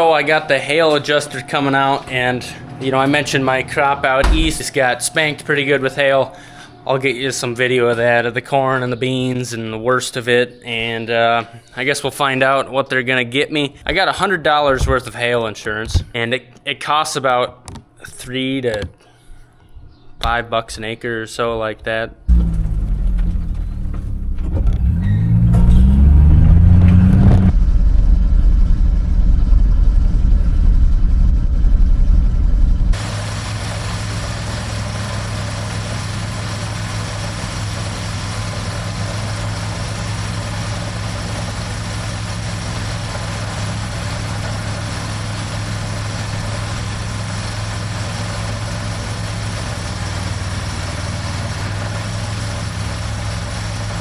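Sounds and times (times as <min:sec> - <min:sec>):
tractor engine running: 0:04.2 - 0:04.9, 0:22.3 - 0:54.0.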